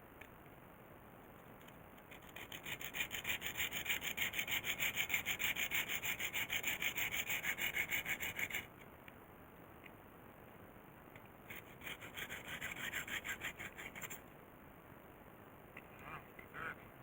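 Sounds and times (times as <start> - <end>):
hacksaw sawing: 2.1 - 8.7, 11.5 - 14.2.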